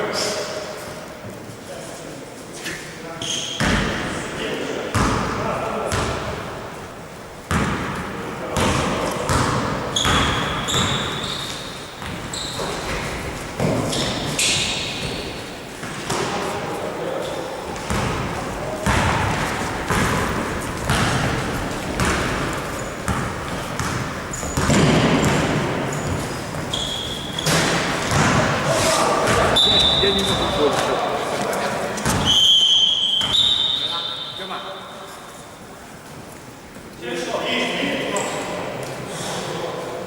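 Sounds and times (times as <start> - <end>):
sneaker squeaks on floor: 3.2 - 4.0, 8.6 - 16.3, 17.2 - 28.5, 29.2 - 35.7
basketball bouncing on hardwood: 8.6 - 11.1, 18.8 - 28.5.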